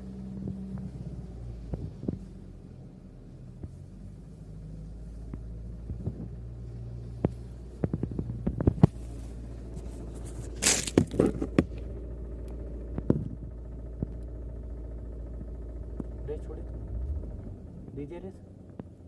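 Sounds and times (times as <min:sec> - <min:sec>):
diesel engine idling: 0:00.0 - 0:19.0
sharp engine knocks: 0:10.5 - 0:12.0, 0:12.9 - 0:14.2.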